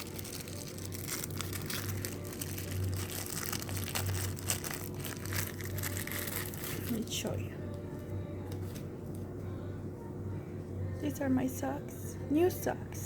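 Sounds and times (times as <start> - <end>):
packaging crinkling: 0.0 - 7.1
steady low hum: 0.0 - 13.0.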